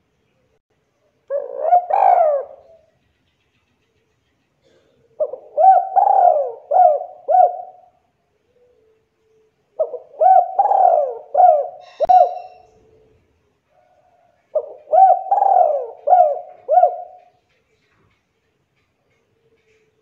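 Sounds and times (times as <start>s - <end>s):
dove cooing: 1.3s - 2.9s, 4.6s - 9.0s, 9.7s - 13.1s, 14.0s - 17.4s.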